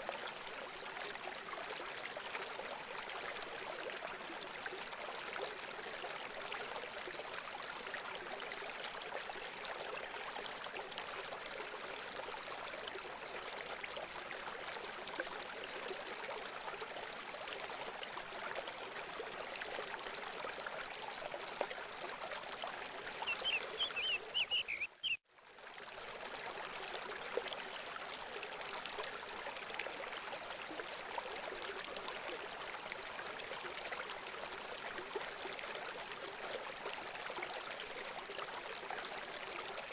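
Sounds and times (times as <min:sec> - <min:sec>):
water babbling: 0:00.0 - 0:39.9
high bird chirps: 0:23.2 - 0:25.2.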